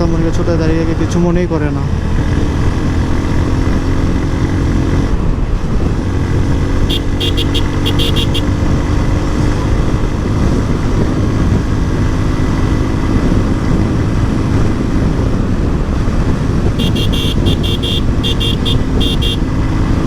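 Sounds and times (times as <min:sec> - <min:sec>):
motorcycle engine running: 0:05.4 - 0:20.0
horn short beeps: 0:06.8 - 0:08.5, 0:16.8 - 0:19.4
wind rushing over microphone: 0:08.4 - 0:20.0.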